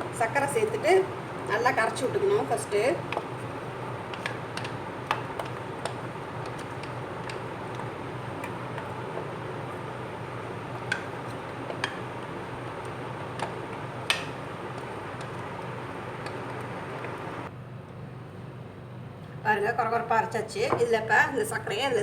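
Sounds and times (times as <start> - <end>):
motor hum: 0.0 - 17.5.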